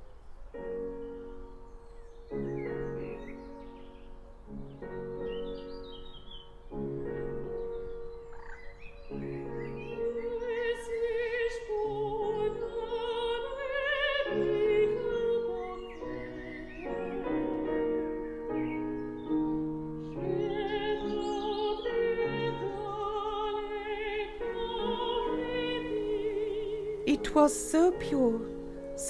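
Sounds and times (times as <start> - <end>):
held accompanying chords: 0.0 - 29.0
operatic singing: 9.8 - 18.2, 20.1 - 29.0.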